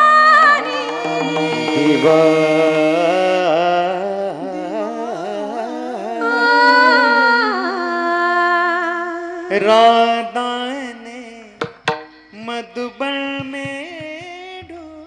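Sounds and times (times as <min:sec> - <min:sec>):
woman singing devotional song: 0:00.0 - 0:03.7, 0:06.2 - 0:09.5
steady drone: 0:00.0 - 0:04.4.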